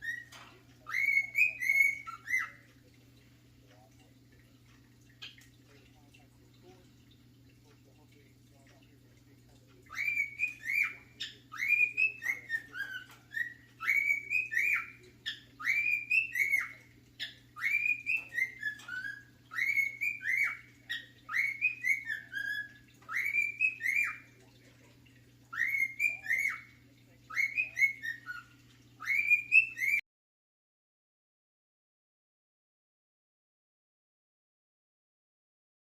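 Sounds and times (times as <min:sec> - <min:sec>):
cockatiel whistling: 0:00.0 - 0:02.6, 0:09.9 - 0:24.2, 0:25.5 - 0:26.7, 0:27.3 - 0:28.4, 0:29.0 - 0:30.0.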